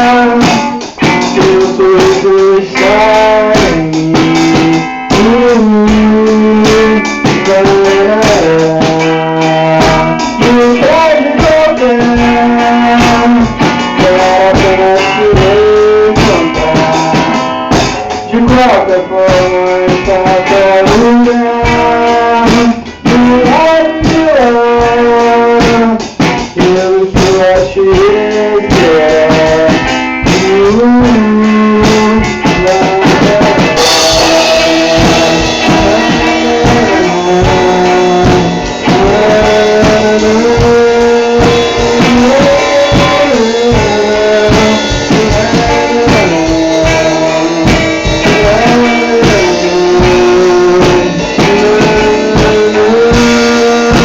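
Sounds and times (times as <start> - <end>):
drum kit: 0.0 - 54.0
guitar: 0.0 - 54.0
gliding lead melody: 17.6 - 18.8.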